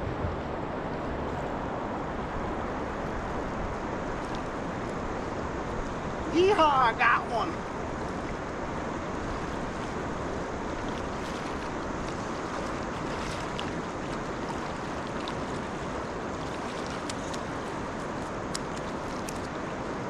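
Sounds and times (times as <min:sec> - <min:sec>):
river water flowing: 0:00.0 - 0:20.0
faint sharp ticks: 0:18.2 - 0:19.5.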